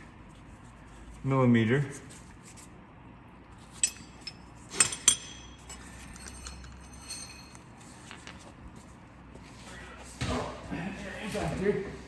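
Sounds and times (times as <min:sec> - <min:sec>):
metal hand tools clinking: 0:03.7 - 0:07.7.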